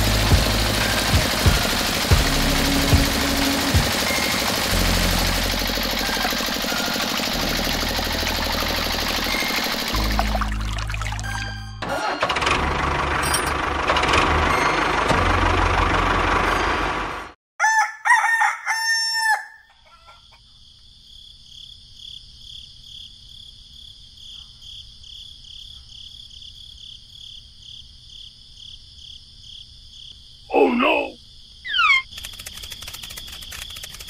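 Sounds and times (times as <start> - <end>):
small engine running: 0.0 - 10.6, 11.9 - 17.4, 32.1 - 34.0
rooster crowing: 17.6 - 20.4
crickets chirping: 19.7 - 34.0.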